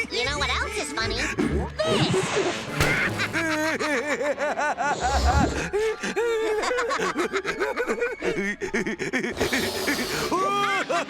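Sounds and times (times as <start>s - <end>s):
cartoon character laughing: 1.8s - 5.1s, 10.3s - 11.0s.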